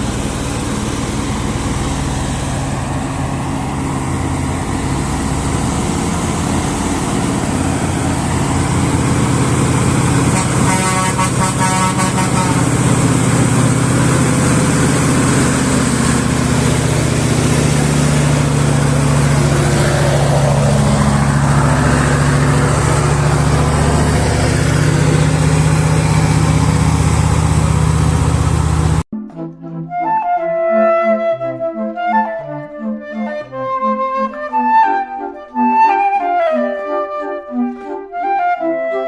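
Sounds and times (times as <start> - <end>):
diesel engine running loudly: 0.0 - 29.1.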